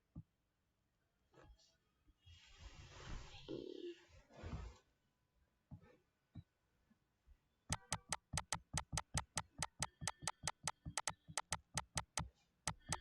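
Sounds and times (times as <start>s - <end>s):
sharp clicks: 7.7s - 13.0s.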